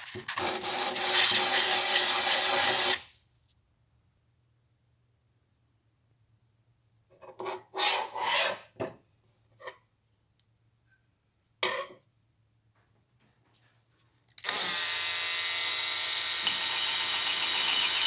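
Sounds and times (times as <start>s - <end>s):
file rasping on metal: 7.4s - 8.7s.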